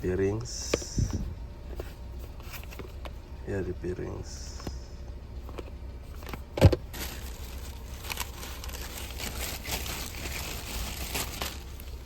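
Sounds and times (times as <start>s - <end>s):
packaging crinkling and rustling: 6.7s - 12.0s.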